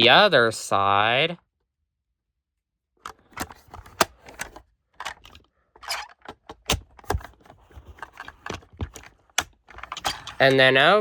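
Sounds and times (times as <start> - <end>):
toy truck clicking and rattling: 8.0 - 10.6.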